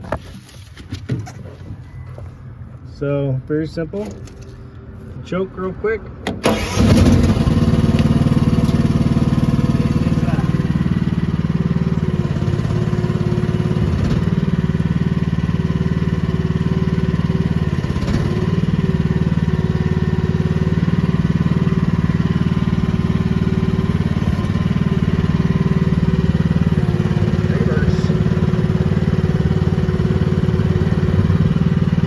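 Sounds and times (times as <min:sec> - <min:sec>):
small gasoline engine running: 0:06.5 - 0:32.0.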